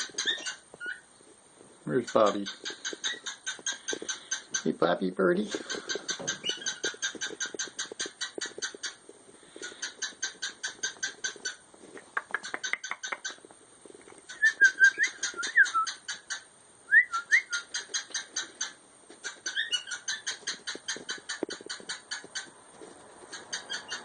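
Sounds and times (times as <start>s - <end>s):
budgerigars chirping: 0.0s - 1.0s, 1.9s - 11.6s, 14.3s - 16.5s, 17.4s - 22.5s, 23.3s - 24.0s
bird whistled notes: 14.3s - 16.0s, 16.9s - 17.7s.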